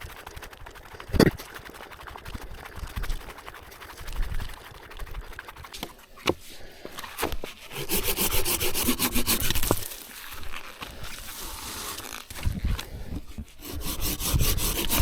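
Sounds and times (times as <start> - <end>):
hand saw rasping through wood: 7.2 - 10.0, 13.4 - 15.0.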